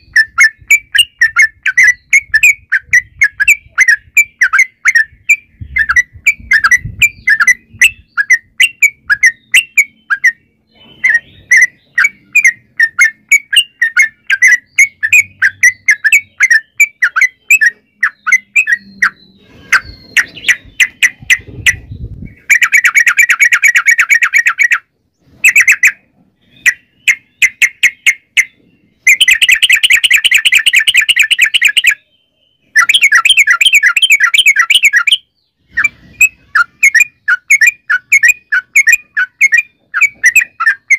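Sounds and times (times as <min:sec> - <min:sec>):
bird chirping and trilling: 0:00.0 - 0:40.9.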